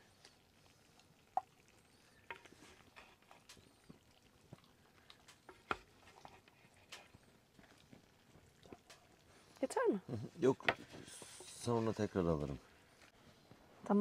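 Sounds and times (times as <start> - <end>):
faint clicks and taps: 2.2 - 9.6.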